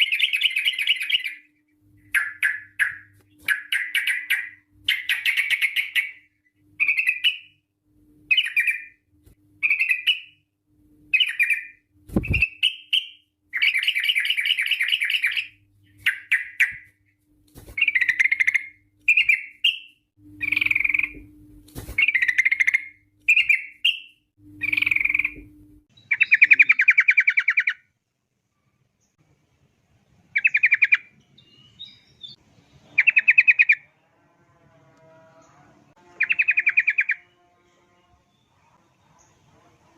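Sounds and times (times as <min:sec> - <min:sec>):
bird singing rattling phrases: 0:00.0 - 0:17.1, 0:17.7 - 0:21.2, 0:21.9 - 0:27.9, 0:30.3 - 0:33.9, 0:36.0 - 0:37.4.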